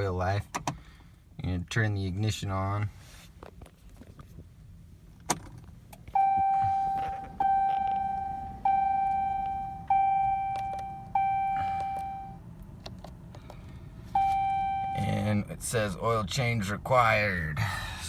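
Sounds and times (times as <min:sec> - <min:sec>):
warning chime: 0:06.2 - 0:12.4.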